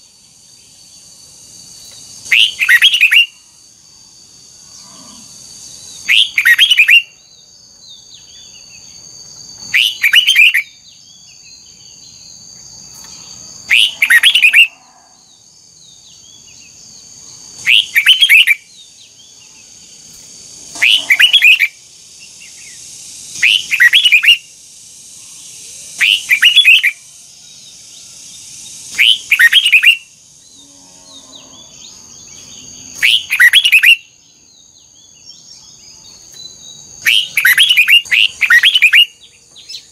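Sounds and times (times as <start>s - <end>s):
bulbul singing: 1.6s - 3.5s, 5.8s - 24.6s, 25.3s - 39.9s
high-pitched whine: 19.5s - 34.1s.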